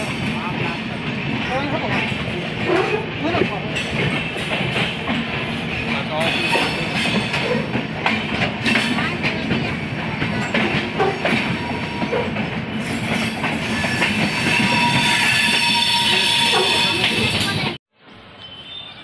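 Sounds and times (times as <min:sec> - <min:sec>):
wheels clacking over rail joints: 0:00.0 - 0:15.8
train coaches rumbling past: 0:00.0 - 0:19.0.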